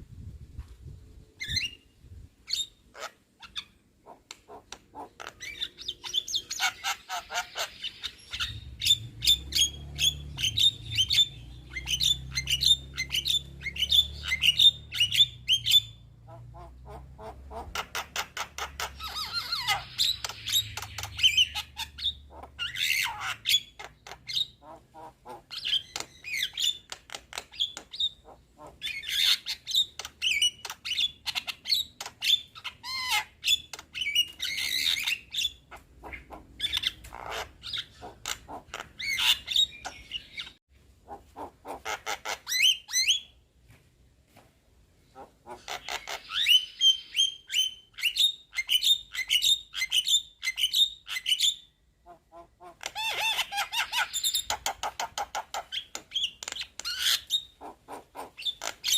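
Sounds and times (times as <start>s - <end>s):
myna chattering and squawking: 3.0s - 26.1s, 28.2s - 40.5s, 45.1s - 46.6s.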